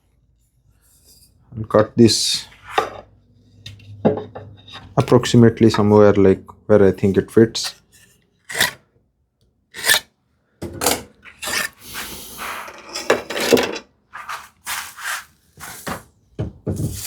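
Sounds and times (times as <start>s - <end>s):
hand saw cutting wood: 8.5s - 8.8s, 9.8s - 10.1s, 11.3s - 13.6s.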